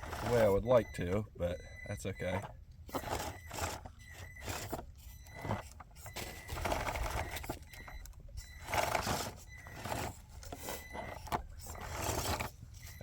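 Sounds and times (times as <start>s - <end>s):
tires scraping on stone: 0.0s - 0.8s, 2.1s - 13.0s.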